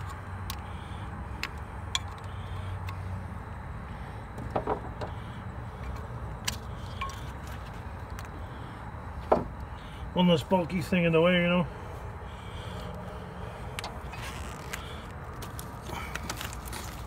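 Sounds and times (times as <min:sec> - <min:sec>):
steady low hum: 0:00.0 - 0:17.0
clicks and knocks of parts handled: 0:01.4 - 0:03.0.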